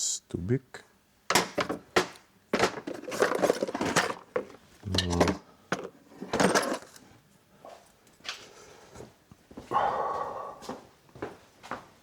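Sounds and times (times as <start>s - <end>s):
metal tools clinking and clattering: 2.6s - 7.0s.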